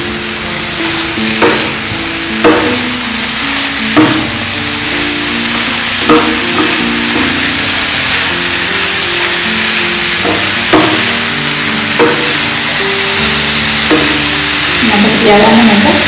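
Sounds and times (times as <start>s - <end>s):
food sizzling in a frying pan: 0.0s - 16.0s
instrumental melody: 0.0s - 16.0s
spatula scraping a pan: 0.0s - 16.0s.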